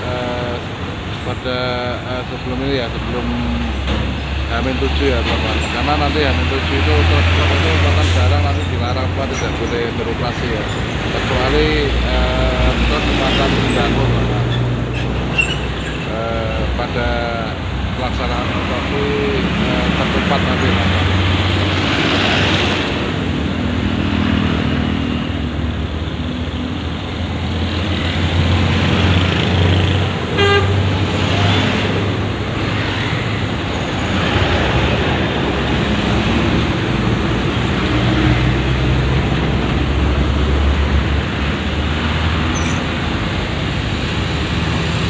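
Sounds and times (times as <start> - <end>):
truck engine rumble: 0.0 - 45.0
horn toot: 30.4 - 30.9.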